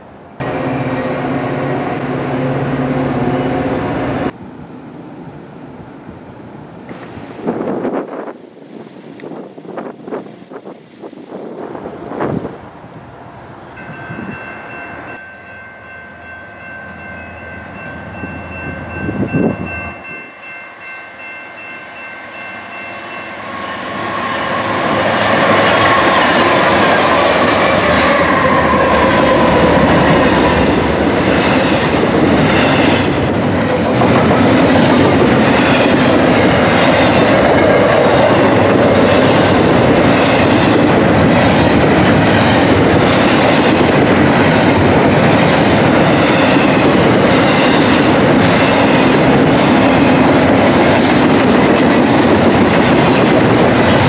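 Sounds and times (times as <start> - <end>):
diesel locomotives: 0.0 - 54.0
freight train wheels clacking: 16.1 - 54.0.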